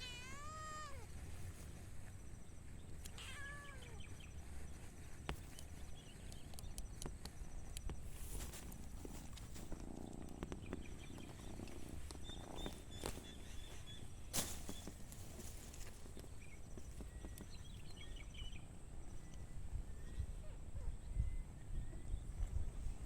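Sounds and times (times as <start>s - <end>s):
faint bird chirps: 0.0s - 15.0s, 16.2s - 22.8s
light clicks and rustles: 2.9s - 17.9s.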